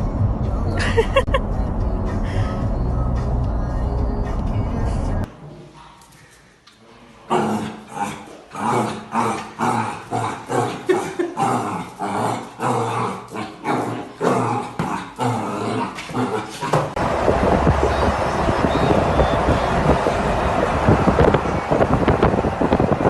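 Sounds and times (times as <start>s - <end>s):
dog growling and yipping: 7.3s - 16.9s
wind-like noise: 17.0s - 23.0s.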